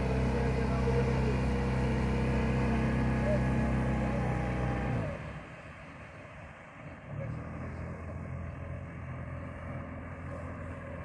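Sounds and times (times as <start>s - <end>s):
boat engine humming: 0.0s - 7.1s.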